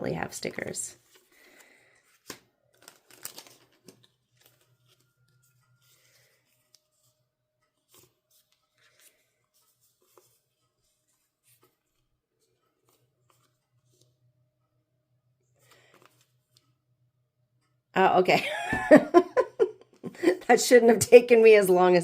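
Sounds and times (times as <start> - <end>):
paper and plastic rustling: 1.0 - 14.2.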